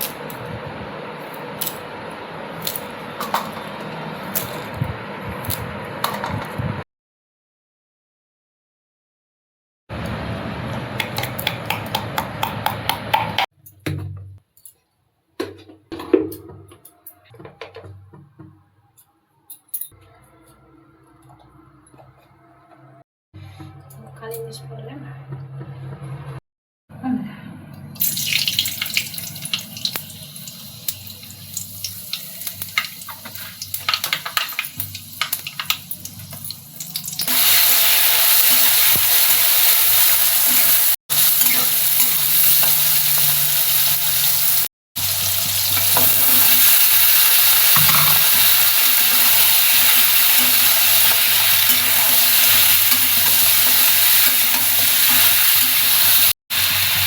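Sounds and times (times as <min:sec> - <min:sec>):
food frying in hot oil: 0:00.0 - 0:06.8, 0:28.0 - 0:57.0.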